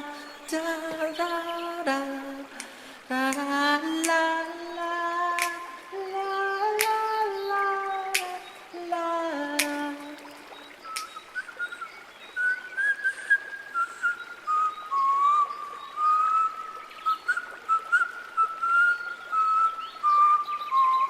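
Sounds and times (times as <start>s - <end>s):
person whistling a melody: 10.9s - 21.0s.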